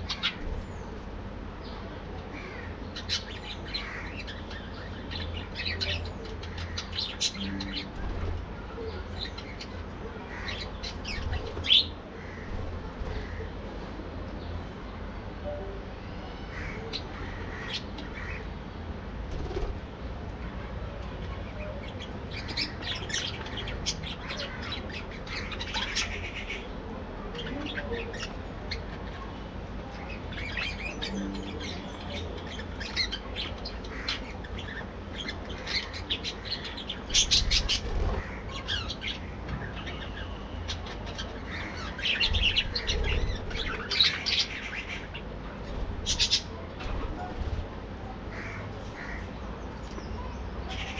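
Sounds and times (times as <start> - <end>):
budgerigars chattering: 0.0 - 1.0, 30.0 - 47.6, 48.3 - 49.4.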